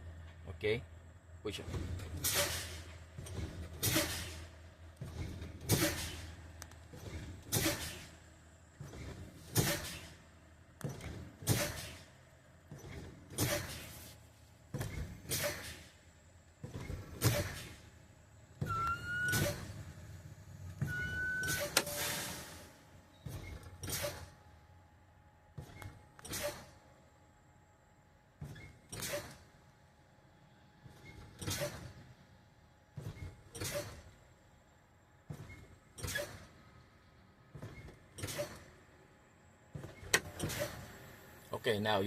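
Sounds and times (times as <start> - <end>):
truck air brakes hissing: 2.1 - 3.0, 3.8 - 4.6, 5.7 - 6.5, 7.5 - 8.2, 9.4 - 10.3, 11.4 - 12.1, 13.3 - 14.2, 15.2 - 16.0, 18.6 - 24.3, 26.3 - 26.8
brief whistling tones: 18.6 - 19.6, 20.8 - 22.3.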